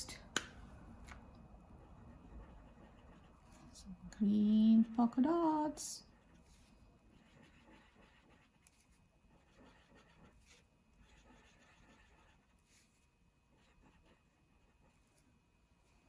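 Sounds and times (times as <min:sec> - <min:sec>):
marker scratching paper: 0:01.8 - 0:03.8, 0:06.0 - 0:15.3.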